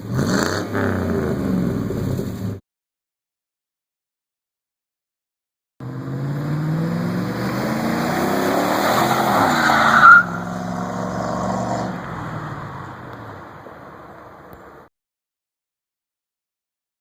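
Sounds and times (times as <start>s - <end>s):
truck engine accelerating: 0.0s - 2.6s, 5.8s - 14.6s
tire squeal: 7.8s - 11.9s.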